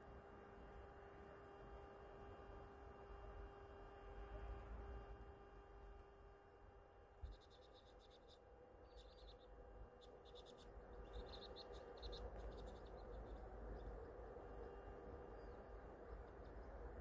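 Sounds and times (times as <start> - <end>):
low steady rumble: 0.0 - 17.0
small birds chirping: 7.1 - 17.0.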